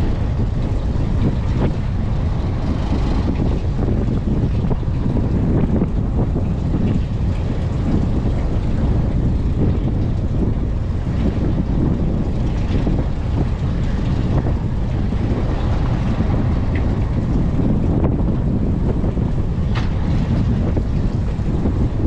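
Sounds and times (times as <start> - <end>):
boat engine rumble: 0.0 - 22.0
wind buffeting microphone: 0.0 - 22.0.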